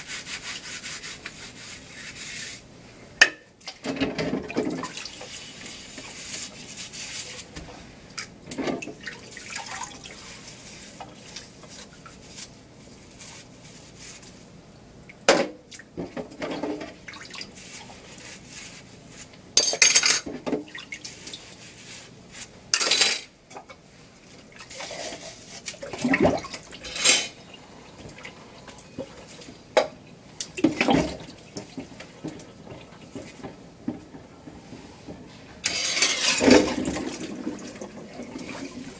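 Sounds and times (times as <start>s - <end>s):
running water: 8.4s - 12.2s, 35.6s - 38.9s
dishes and cutlery clattering: 19.6s - 20.6s, 22.8s - 23.8s, 26.7s - 27.4s, 35.6s - 37.2s.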